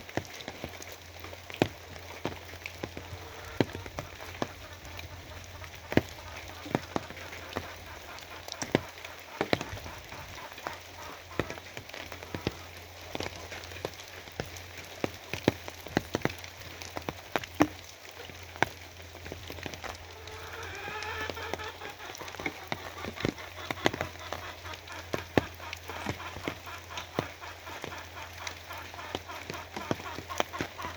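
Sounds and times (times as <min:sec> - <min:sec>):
rain patter: 0:00.0 - 0:30.9
wavering animal call: 0:19.9 - 0:30.9.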